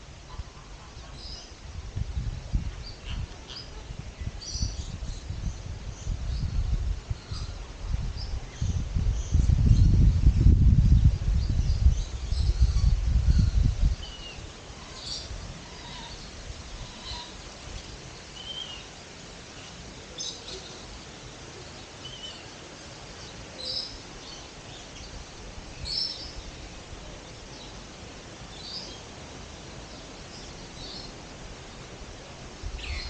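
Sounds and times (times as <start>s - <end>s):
steady background hiss: 0.0s - 33.0s
birds chirping: 32.8s - 33.0s.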